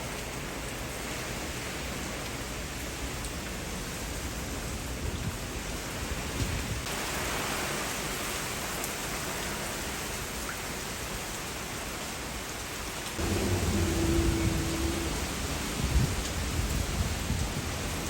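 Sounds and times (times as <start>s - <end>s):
heavy rain pouring: 0.0s - 18.0s
low rumble: 13.2s - 17.4s.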